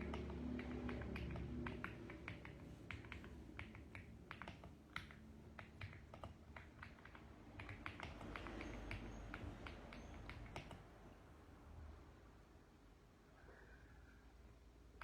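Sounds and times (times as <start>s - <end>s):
mechanical keyboard typing: 0.0s - 10.9s.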